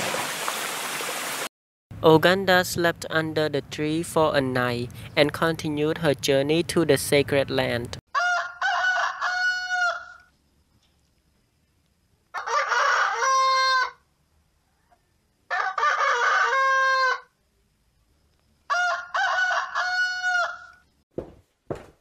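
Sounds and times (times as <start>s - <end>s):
rooster crowing: 8.1s - 10.3s, 12.3s - 14.1s, 14.8s - 17.4s, 18.7s - 20.8s.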